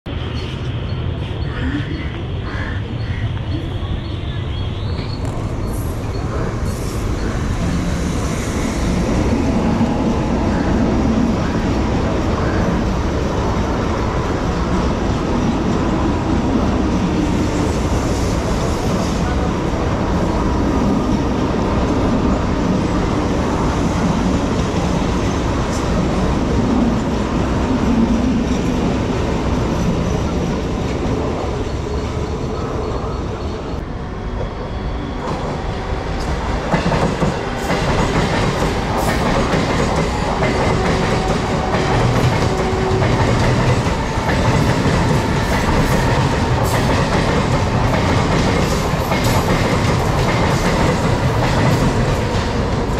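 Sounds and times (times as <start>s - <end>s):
train wheels rumbling on track: 0.1s - 52.9s
sharp train clatters: 33.7s - 52.9s.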